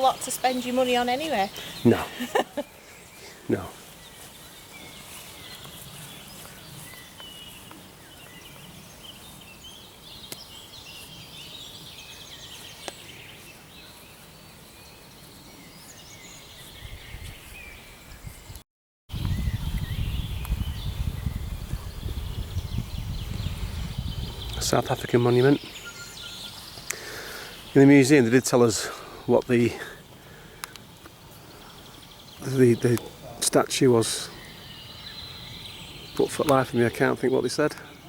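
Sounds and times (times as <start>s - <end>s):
songbirds singing and chirping: 0.0s - 38.0s
wind buffeting microphone: 16.7s - 25.8s.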